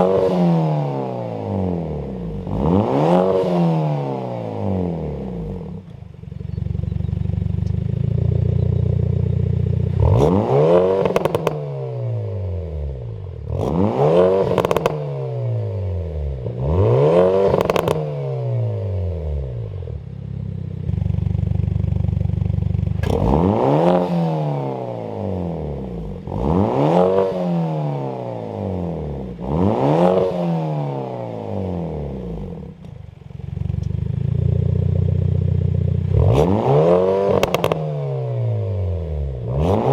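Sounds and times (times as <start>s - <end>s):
car engine revving: 0.0s - 20.0s, 20.9s - 39.9s
exhaust crackle: 20.8s - 23.8s, 37.3s - 37.8s.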